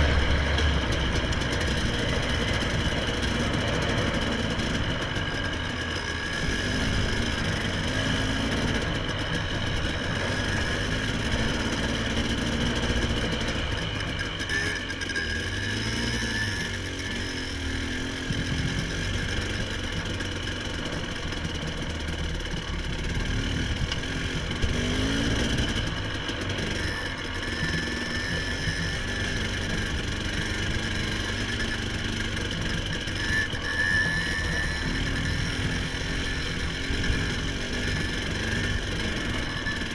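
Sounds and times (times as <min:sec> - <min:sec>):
vehicle engine revving: 0:00.0 - 0:20.1, 0:23.0 - 0:39.9.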